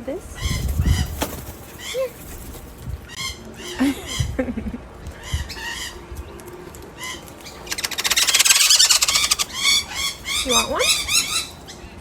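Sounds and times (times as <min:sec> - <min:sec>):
birds squawking: 0:00.2 - 0:12.0
wings flapping: 0:00.3 - 0:11.2.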